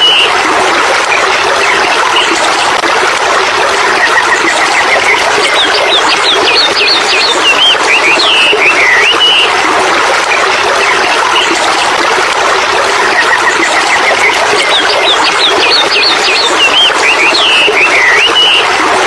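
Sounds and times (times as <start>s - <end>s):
running water: 0.0s - 19.0s
bird chirps: 4.2s - 9.5s, 13.3s - 18.7s
songbird whistling: 4.8s - 9.5s, 14.6s - 18.7s.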